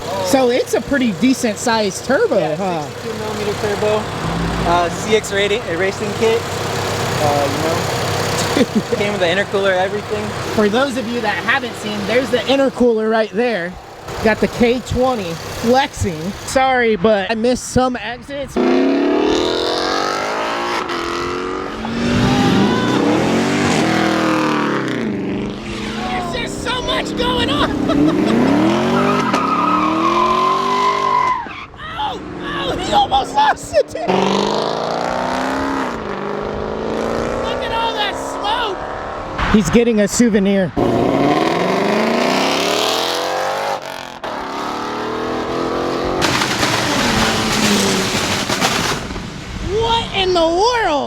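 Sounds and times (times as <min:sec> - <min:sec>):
car engine revving: 0:00.0 - 0:16.6, 0:18.5 - 0:39.6, 0:40.7 - 0:49.7
exhaust pops crackling: 0:00.0 - 0:16.6, 0:45.9 - 0:49.8.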